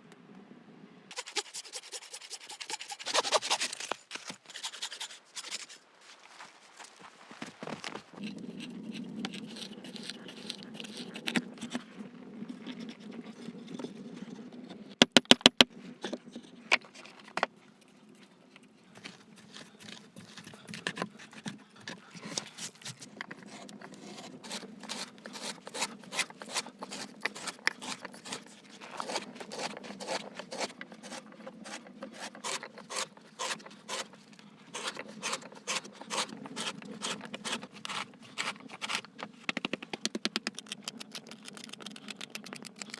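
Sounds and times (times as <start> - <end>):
scraping and rubbing: 1.1 - 11.9, 18.9 - 42.9
sharp taps and clicks: 39.5 - 42.9.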